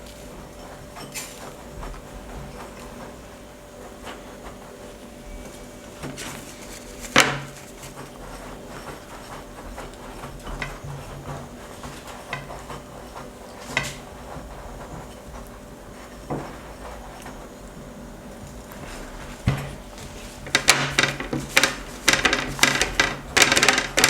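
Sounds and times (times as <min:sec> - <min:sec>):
dishes and utensils clinking: 0:00.4 - 0:02.8.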